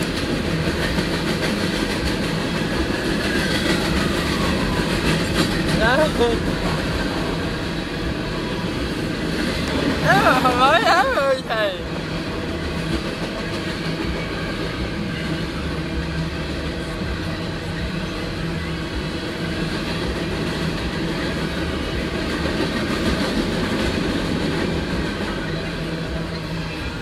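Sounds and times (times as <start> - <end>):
train cars rolling on rails: 0.0 - 27.0.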